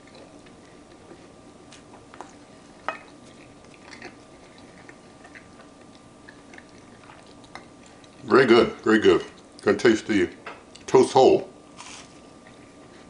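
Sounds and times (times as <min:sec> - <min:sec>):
person chewing: 0:00.0 - 0:08.2.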